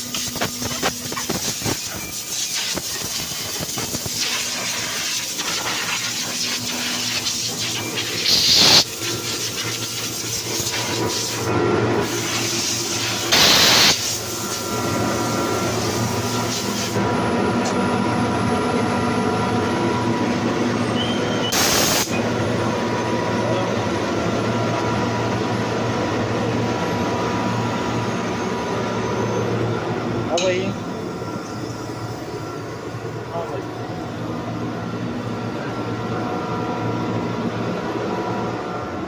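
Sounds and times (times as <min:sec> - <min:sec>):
hissing air blasts: 0:00.0 - 0:17.0, 0:21.5 - 0:22.2
air compressor running: 0:00.0 - 0:39.0.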